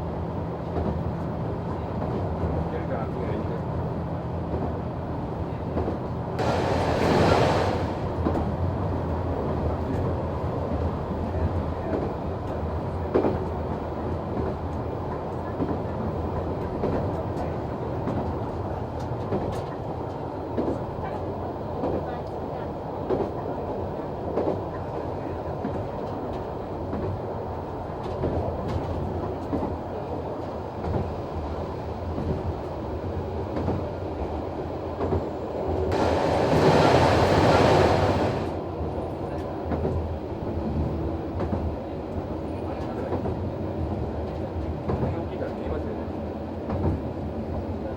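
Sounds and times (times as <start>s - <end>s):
railcar engine rumble: 0.0s - 47.9s
rushing noise: 6.4s - 8.2s, 35.9s - 38.6s.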